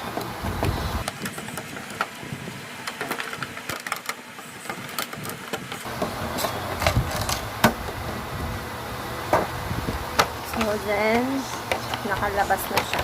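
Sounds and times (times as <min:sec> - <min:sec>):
plastic and cardboard packaging rustling: 0:00.0 - 0:08.4.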